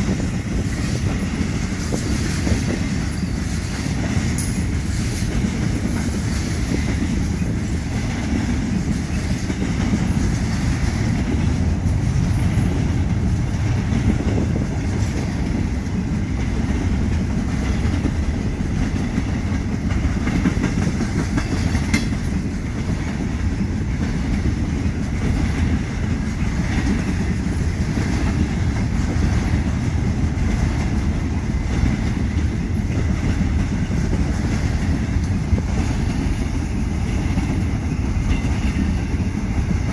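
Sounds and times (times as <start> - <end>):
freight train cars rumbling past: 0.0 - 39.9
wheels clacking over rail joints: 0.0 - 39.9.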